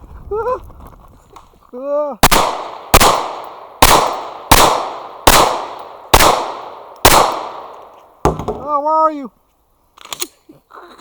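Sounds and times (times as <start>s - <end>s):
pistol shots: 2.2s - 8.6s.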